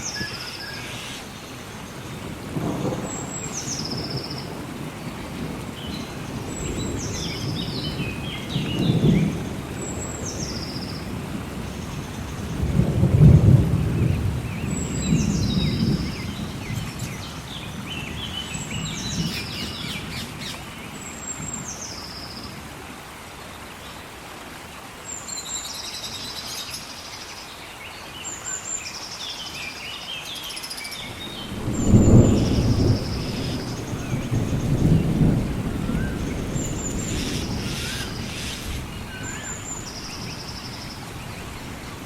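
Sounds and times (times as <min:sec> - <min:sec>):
songbird singing: 0:00.0 - 0:22.6, 0:25.1 - 0:42.0
rain hissing: 0:00.0 - 0:42.0
thunder rumbling: 0:02.2 - 0:20.5, 0:31.0 - 0:42.0.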